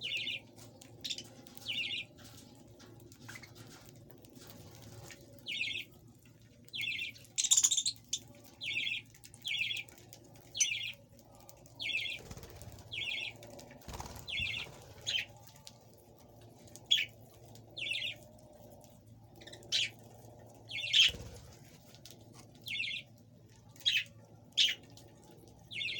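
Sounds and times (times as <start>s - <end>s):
birds chirping: 5.4s - 5.9s, 11.8s - 15.4s, 20.7s - 21.7s, 22.6s - 23.1s.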